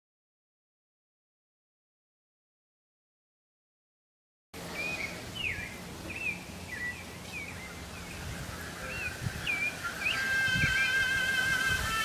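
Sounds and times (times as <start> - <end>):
bird chirping: 4.7 - 12.0.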